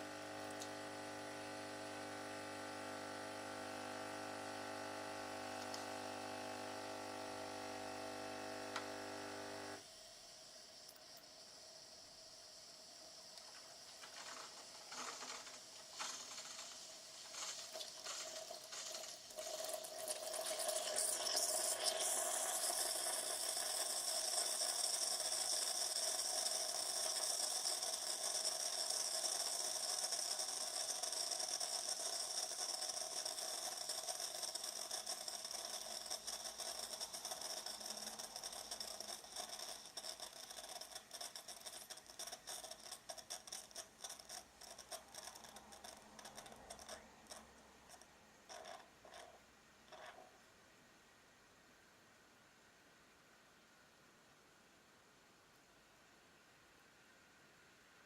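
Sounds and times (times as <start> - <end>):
coffee machine pump brewing: 0.0 - 50.4.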